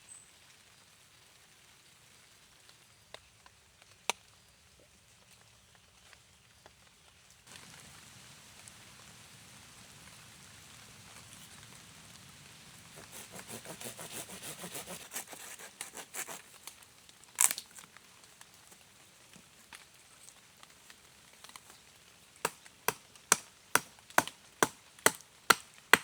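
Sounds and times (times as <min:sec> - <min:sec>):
twigs crackling and rustling: 0:12.9 - 0:26.0.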